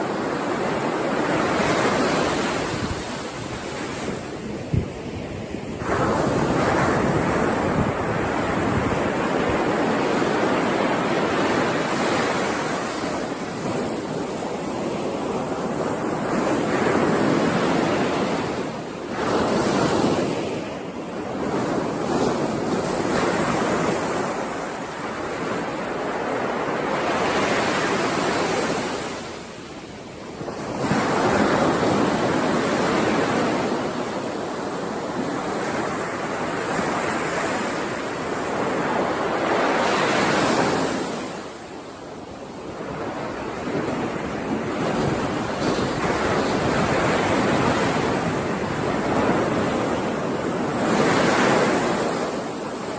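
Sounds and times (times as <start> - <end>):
ocean waves washing in: 0.0 - 52.9.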